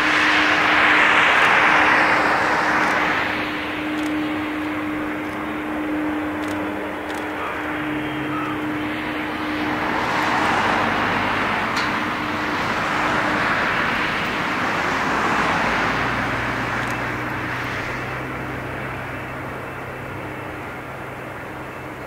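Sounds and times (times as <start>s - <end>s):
jet engine rushing rumble: 0.0s - 22.0s
steady hum: 0.0s - 22.0s.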